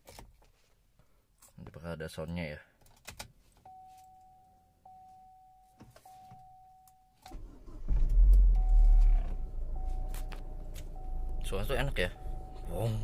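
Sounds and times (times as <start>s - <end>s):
dashboard warning chime: 3.7s - 7.7s, 8.5s - 13.0s
car engine cranking and running: 7.3s - 12.7s.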